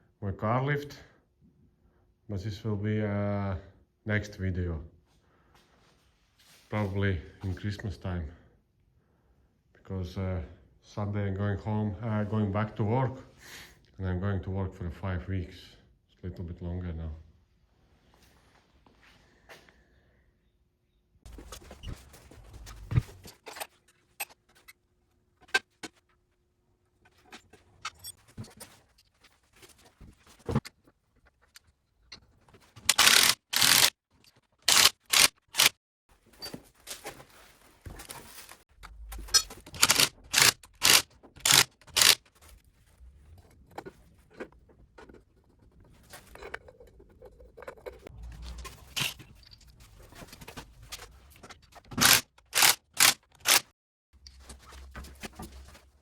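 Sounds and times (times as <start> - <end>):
metal parts and tools scraping: 21.3 - 24.8, 27.0 - 30.7, 31.3 - 55.9.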